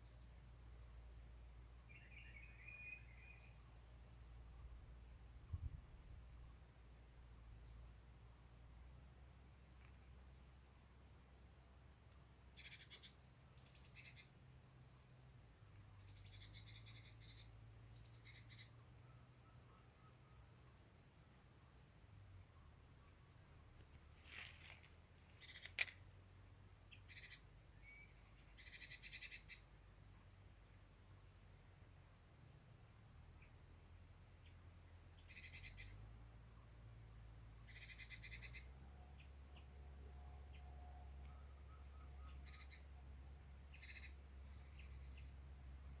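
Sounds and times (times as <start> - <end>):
faint high-pitched hiss: 0.0 - 46.0
birds chirping and chattering: 42.0 - 42.9, 43.6 - 45.6.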